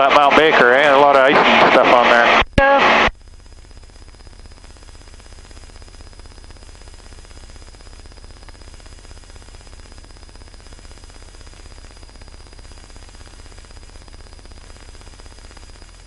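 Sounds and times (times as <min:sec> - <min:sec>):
intercom hiss: 0:00.0 - 0:03.1
low cockpit rumble: 0:00.0 - 0:16.0.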